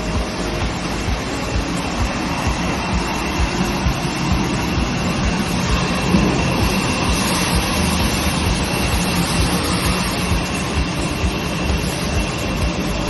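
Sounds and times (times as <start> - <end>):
glass washing machine running: 0.0 - 13.0
thin high tone: 0.0 - 13.0.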